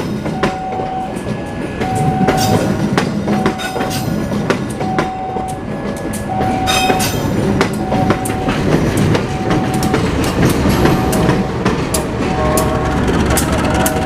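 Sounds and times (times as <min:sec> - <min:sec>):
train rumbling on track: 0:00.0 - 0:14.0
short repeating tone: 0:07.8 - 0:08.6, 0:09.3 - 0:10.2.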